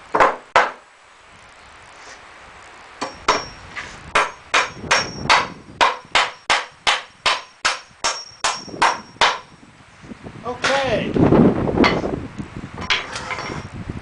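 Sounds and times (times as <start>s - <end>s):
hammer driving nails into wood: 0.1s - 0.8s, 4.2s - 9.5s.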